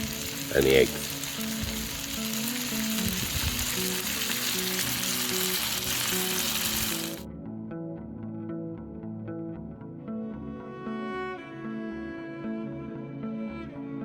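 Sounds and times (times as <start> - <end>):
food sizzling in a pan: 0.0 - 7.2
background music: 0.0 - 14.0.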